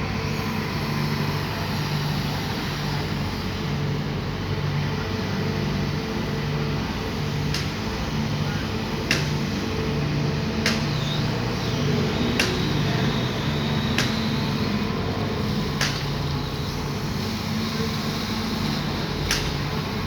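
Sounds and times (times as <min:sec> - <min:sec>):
excavator diesel engine running: 0:00.0 - 0:20.0
sharp clicks: 0:12.4 - 0:12.8, 0:13.9 - 0:14.4, 0:19.3 - 0:19.6.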